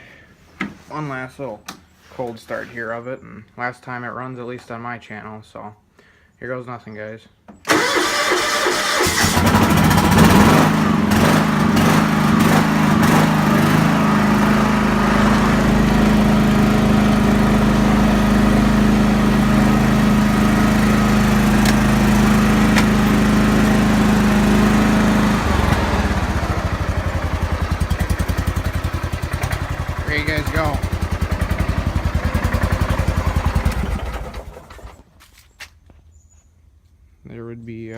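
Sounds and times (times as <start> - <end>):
garden tractor engine running: 7.7 - 35.2.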